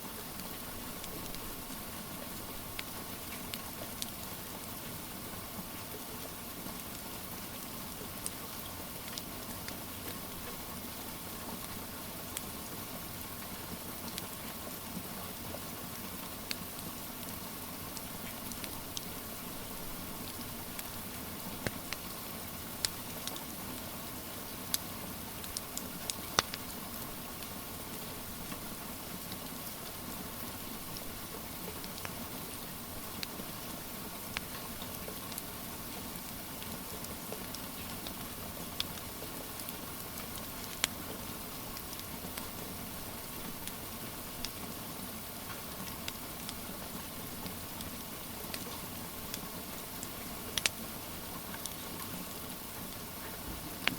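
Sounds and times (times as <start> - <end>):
rain hiss: 0.0 - 53.9
wood fire popping and crackling: 25.4 - 27.5, 36.2 - 41.1, 45.4 - 53.9.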